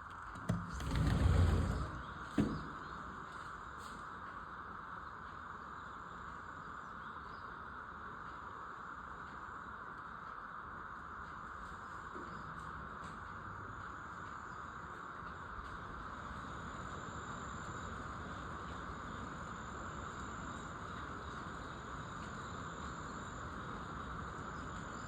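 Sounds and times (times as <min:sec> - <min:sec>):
chorus of insects: 0:00.7 - 0:25.0.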